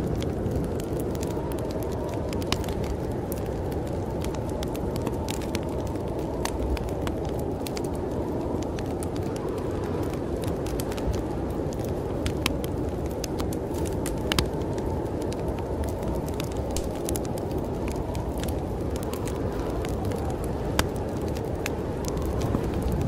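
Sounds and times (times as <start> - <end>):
snowstorm wind rushing: 0.0 - 23.0
wood fire crackling and popping: 0.0 - 23.0.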